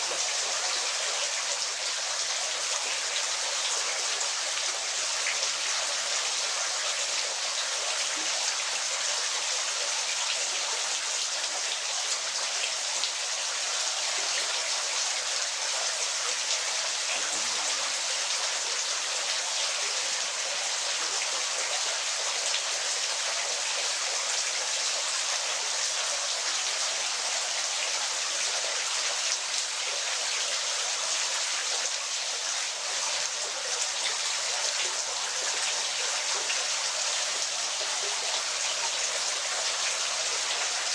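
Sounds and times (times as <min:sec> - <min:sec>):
waterfall rushing and splashing: 0:30.6 - 0:40.9.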